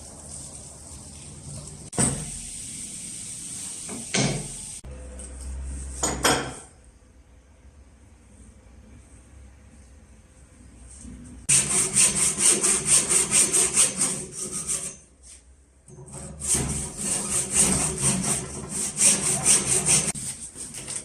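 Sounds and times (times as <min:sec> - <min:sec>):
hand tool scraping wood: 0:16.4 - 0:21.0.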